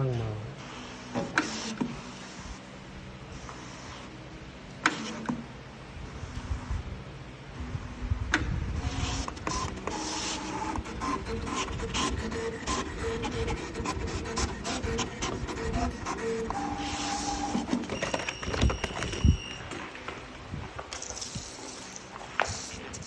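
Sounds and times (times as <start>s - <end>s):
machine motors whining: 7.6s - 20.3s.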